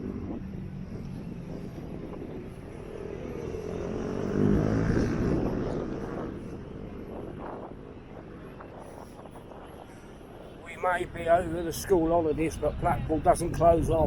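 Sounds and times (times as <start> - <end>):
motor vehicle passing: 0.0 - 8.9.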